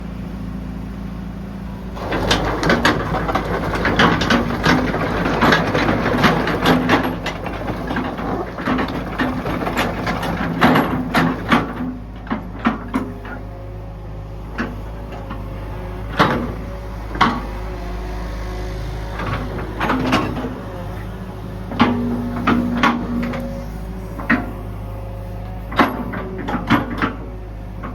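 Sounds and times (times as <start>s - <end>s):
excavator diesel engine running: 0.0s - 27.9s
metallic knocks and clanks: 2.0s - 13.4s, 19.1s - 20.6s, 21.7s - 23.6s, 25.7s - 27.9s.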